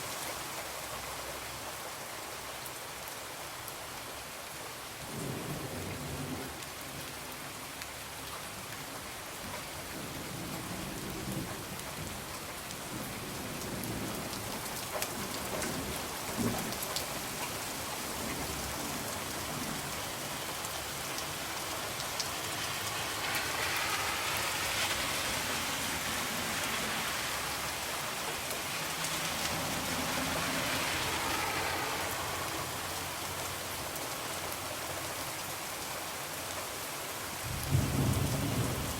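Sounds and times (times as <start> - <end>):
heavy rain on a window: 0.0 - 38.9
low thunder rumbling: 37.5 - 38.9.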